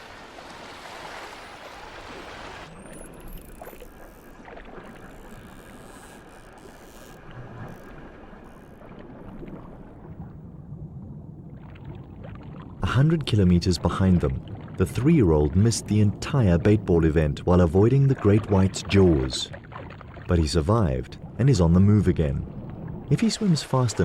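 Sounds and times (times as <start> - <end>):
sea water rushing and splashing: 0.0 - 24.0.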